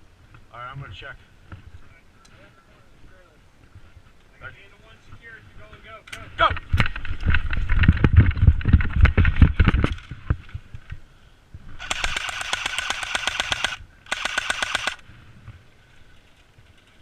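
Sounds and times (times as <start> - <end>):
airsoft gun firing bursts: 11.8 - 15.0.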